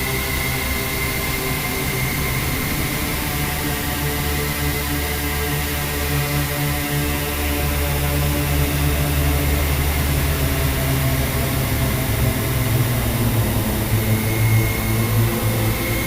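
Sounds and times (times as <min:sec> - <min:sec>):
dark ambient drone music: 0:00.0 - 0:16.0.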